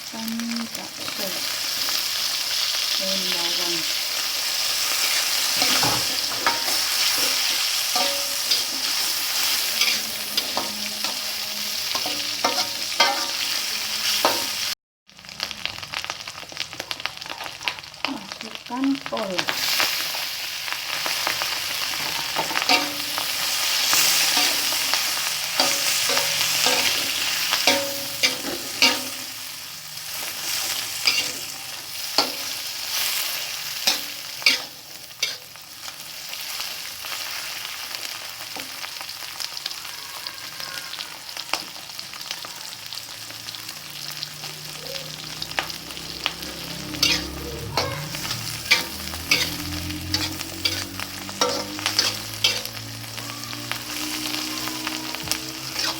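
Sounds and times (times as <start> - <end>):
food sizzling in a frying pan: 0.0 - 55.9
utensil scraping a pan: 46.9 - 52.7.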